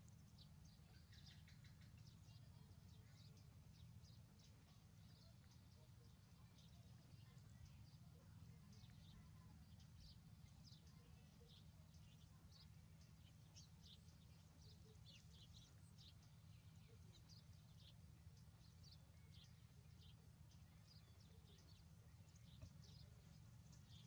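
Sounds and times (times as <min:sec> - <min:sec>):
low steady hum: 0:00.0 - 0:24.0
small birds chirping: 0:00.0 - 0:24.0.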